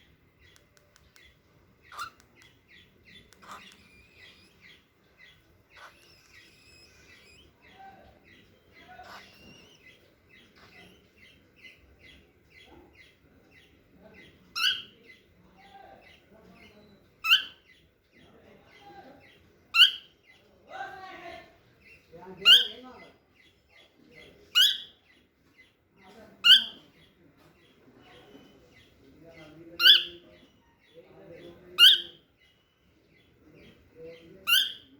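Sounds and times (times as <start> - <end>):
loud bird calls: 1.2 - 13.8, 34.5 - 34.9
cockatiel chirping: 1.8 - 7.5, 8.9 - 10.0, 16.9 - 17.7.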